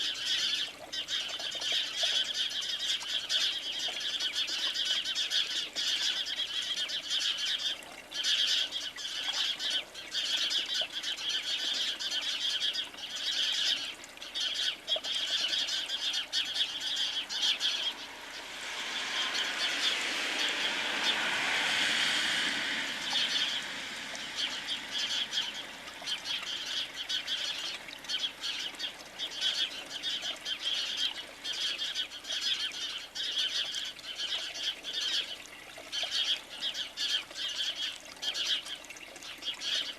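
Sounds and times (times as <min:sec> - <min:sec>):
small birds chirping: 0:00.0 - 0:21.3, 0:23.0 - 0:39.9
broad rushing noise: 0:16.7 - 0:27.0.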